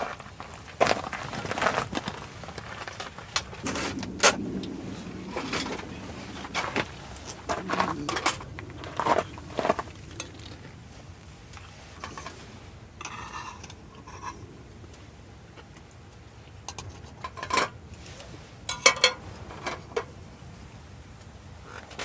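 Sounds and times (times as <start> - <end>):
metal cookware clinking: 18.7 - 20.1.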